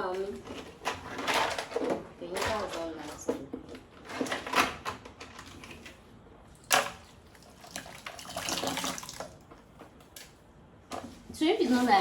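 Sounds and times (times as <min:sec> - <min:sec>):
water splashing and trickling: 0:07.3 - 0:09.4.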